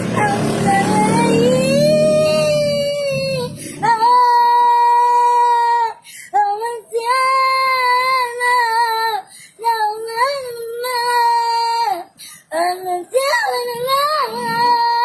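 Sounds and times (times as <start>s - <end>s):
child singing high notes: 0.0s - 6.0s, 10.2s - 15.0s.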